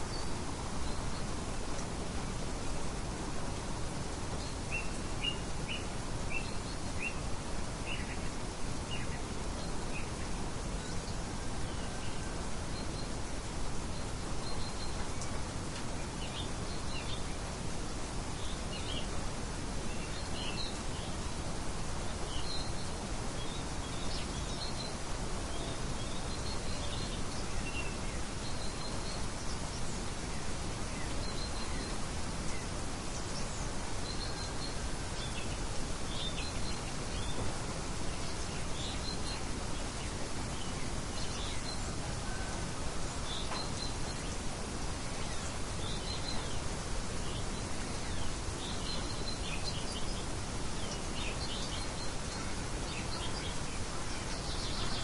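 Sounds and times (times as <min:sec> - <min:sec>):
outdoor ambience hiss: 0:00.0 - 0:55.0
birds chirping: 0:22.1 - 0:55.0.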